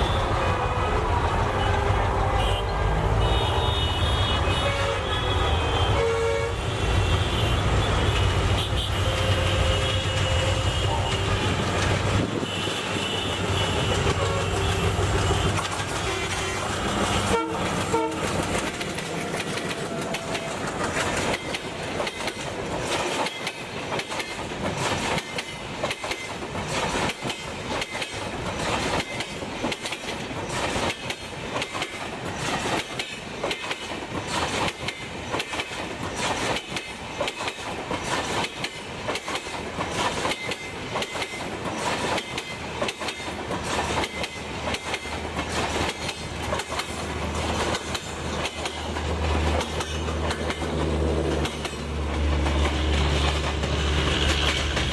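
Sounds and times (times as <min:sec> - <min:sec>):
train rumble: 0:00.0 - 0:54.9
train wheels clattering over rail joints: 0:09.3 - 0:54.9.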